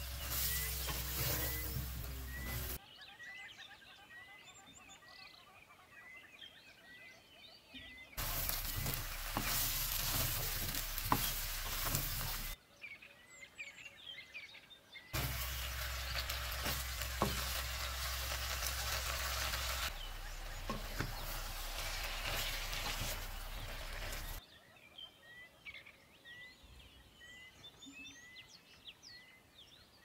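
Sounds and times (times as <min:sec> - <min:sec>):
vegetables sizzling in hot oil: 0:00.0 - 0:02.8, 0:08.2 - 0:12.6, 0:15.2 - 0:24.4
wooden spatula knocking on pan: 0:08.2 - 0:12.5, 0:15.2 - 0:18.2, 0:20.5 - 0:21.5.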